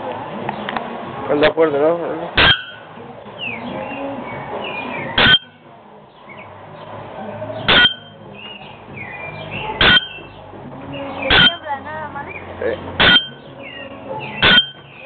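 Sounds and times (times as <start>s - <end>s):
small birds chirping and whistling: 2.4s - 6.9s, 7.5s - 11.6s, 12.3s - 15.0s
metallic bell-like bird call: 2.5s - 2.9s, 7.6s - 8.2s, 9.1s - 10.3s, 13.0s - 15.0s.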